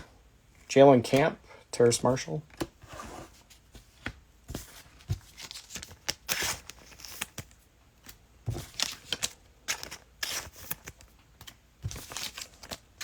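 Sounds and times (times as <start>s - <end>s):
trading cards flicking and rustling: 3.5s - 13.0s.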